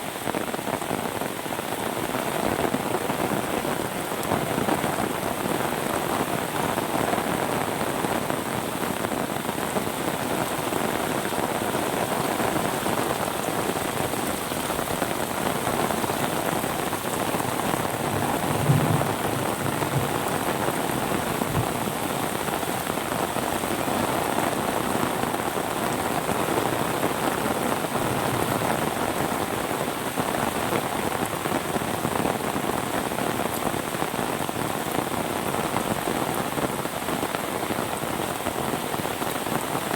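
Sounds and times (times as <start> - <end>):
rain pattering on surfaces: 0.0 - 39.9
low thud: 18.4 - 20.6.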